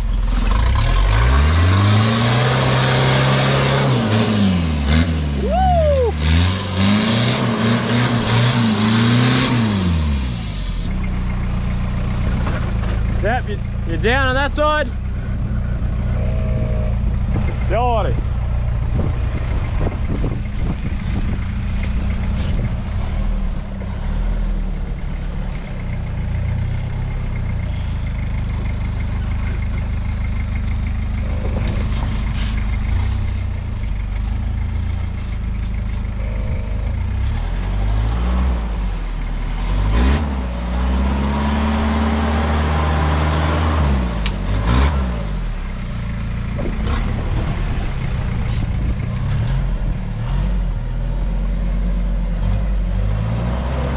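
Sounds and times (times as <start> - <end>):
diesel engine revving: 0.0 - 53.9.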